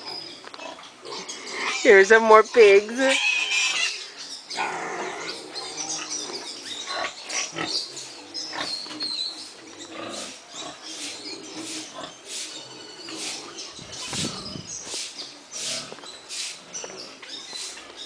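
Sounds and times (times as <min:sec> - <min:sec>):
pigs grunting and squealing: 0:00.0 - 0:14.9, 0:15.6 - 0:16.0.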